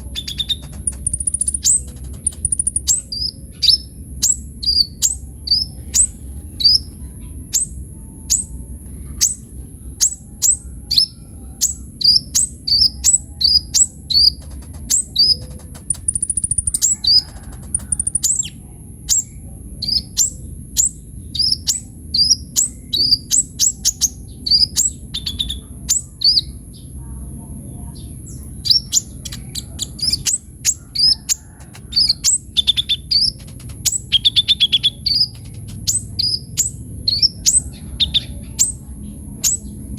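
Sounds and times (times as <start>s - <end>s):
sunbird singing high chirps: 0.0s - 26.9s, 27.8s - 39.9s
steady high whine: 13.4s - 18.4s.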